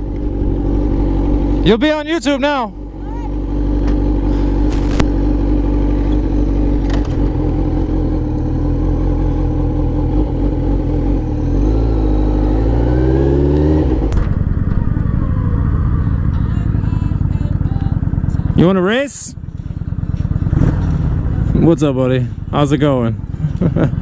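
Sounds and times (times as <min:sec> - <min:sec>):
motorcycle engine running and revving: 0:00.0 - 0:24.0
wind rumble: 0:12.5 - 0:18.5.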